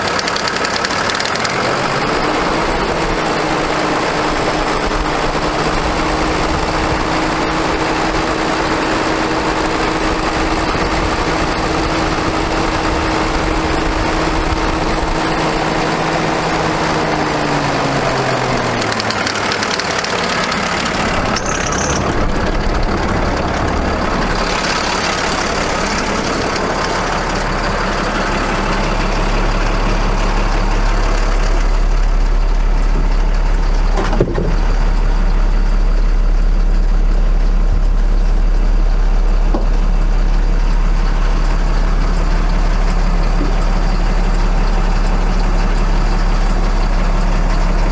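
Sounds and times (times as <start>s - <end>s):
diesel engine whine: 0.0s - 47.9s
deep low rumble: 21.0s - 40.6s.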